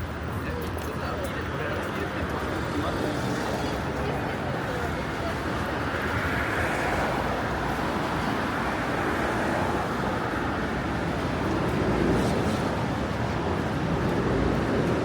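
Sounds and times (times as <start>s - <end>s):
cars passing on wet road: 5.8s - 15.0s.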